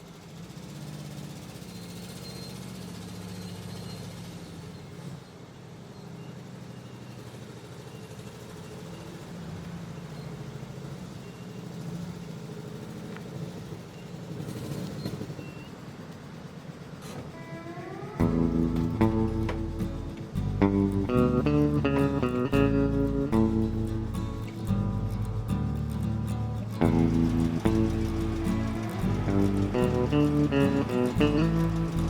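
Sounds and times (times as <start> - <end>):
engine running with low hum: 0.0 - 32.0.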